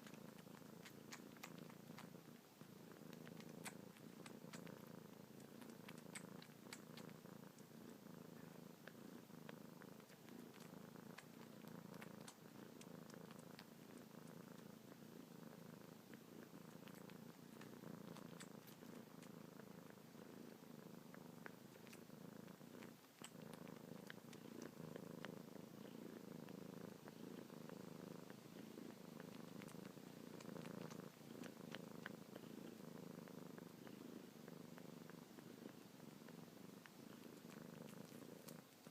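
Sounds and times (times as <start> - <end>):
kitten purring: 0.0 - 38.9
faint clicks: 2.9 - 7.7, 8.8 - 14.7, 16.6 - 20.0, 21.1 - 28.4.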